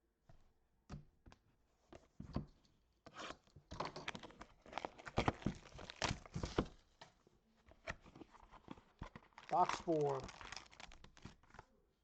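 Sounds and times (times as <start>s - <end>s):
packaging crinkling and rustling: 3.9s - 6.8s, 7.8s - 11.7s.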